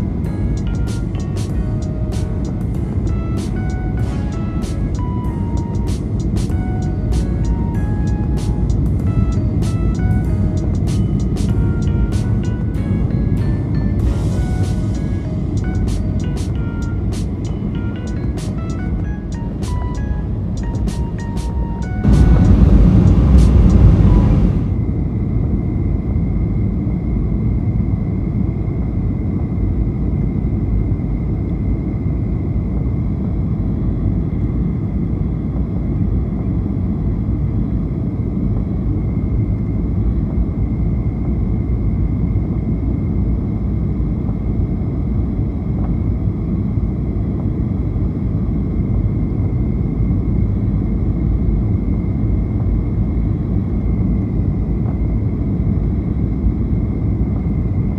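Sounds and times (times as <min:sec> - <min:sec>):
aircraft cabin rumble: 0:00.0 - 0:25.3
thin steady whine: 0:00.0 - 0:57.9.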